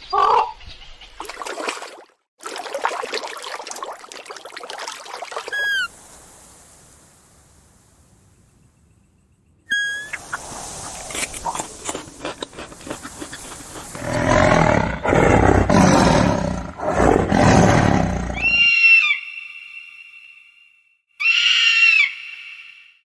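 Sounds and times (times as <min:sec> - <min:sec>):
big cat roaring and growling: 0:12.7 - 0:18.7.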